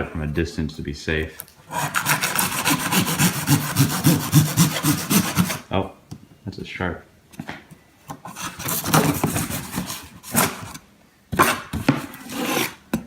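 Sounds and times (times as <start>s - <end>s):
knife scraping through packaging: 1.7s - 5.6s, 8.3s - 10.8s, 11.4s - 12.9s.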